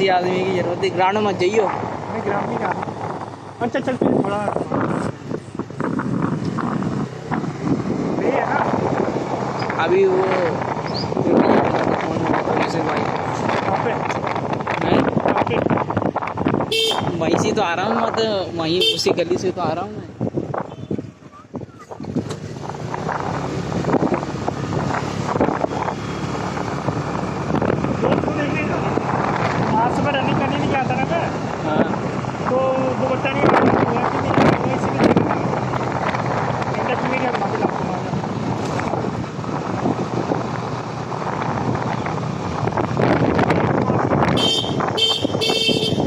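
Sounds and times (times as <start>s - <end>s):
road and traffic noise: 0.0s - 46.0s
wind buffeting microphone: 0.0s - 46.0s
horn honks: 16.7s - 17.2s, 18.8s - 19.1s, 20.6s - 21.0s, 44.4s - 46.0s.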